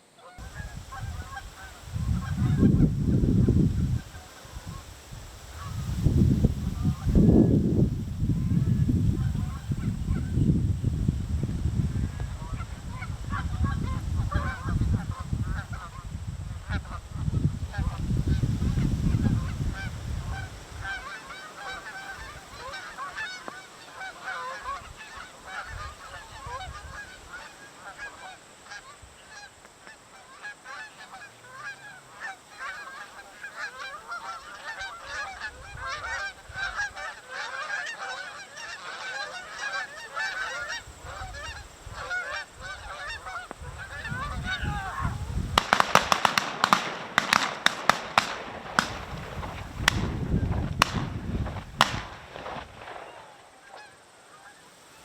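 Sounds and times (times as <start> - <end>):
geese honking: 0.0 - 6.0, 19.2 - 51.2, 51.8 - 55.0
wind rumble on microphone: 0.4 - 21.1, 24.6 - 27.3, 35.0 - 37.1, 40.4 - 53.0.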